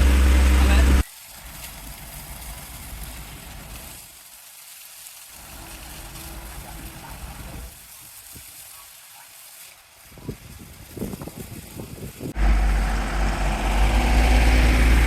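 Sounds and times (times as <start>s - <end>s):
truck engine rumbling: 0.0s - 1.0s, 12.3s - 15.0s
high-pressure water spray hissing: 0.0s - 15.0s.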